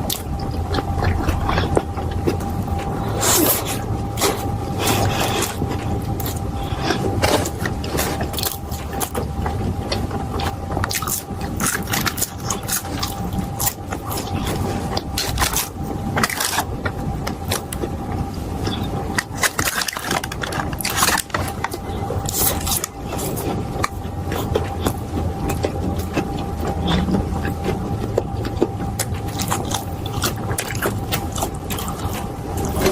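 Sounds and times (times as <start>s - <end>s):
chewing with crisp crunches: 0.0s - 32.9s
faint hum: 0.0s - 32.9s.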